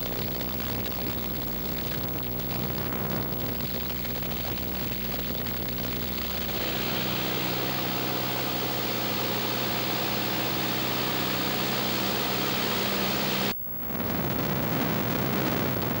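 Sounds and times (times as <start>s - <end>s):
light aircraft engine droning: 0.1s - 13.6s
rushing air noise: 6.0s - 13.5s.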